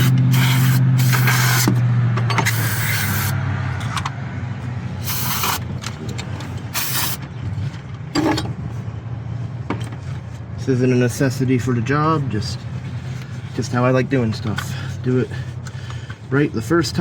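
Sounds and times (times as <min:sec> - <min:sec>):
aerosol spray hissing: 0:00.0 - 0:01.7, 0:05.1 - 0:05.6.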